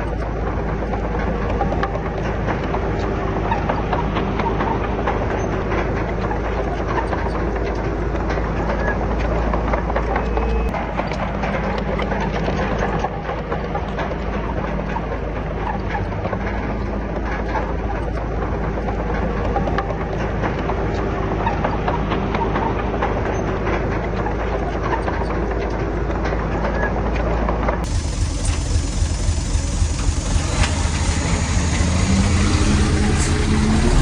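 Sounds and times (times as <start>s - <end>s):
diesel machinery engine hum: 0.0s - 34.0s
metallic clanking and rattling: 27.8s - 34.0s.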